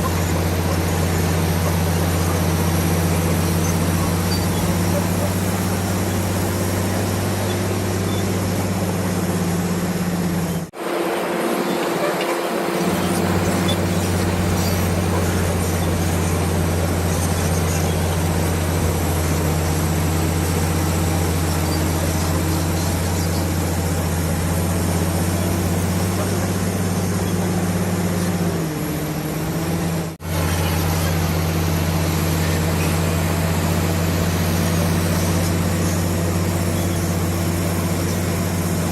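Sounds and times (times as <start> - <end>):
bulldozer diesel engine humming: 0.0 - 38.9.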